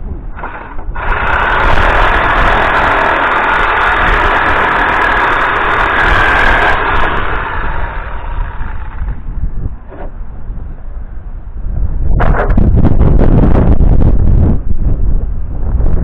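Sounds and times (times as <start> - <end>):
low rumble: 0.0 - 16.0
motor running loudly: 0.3 - 9.9.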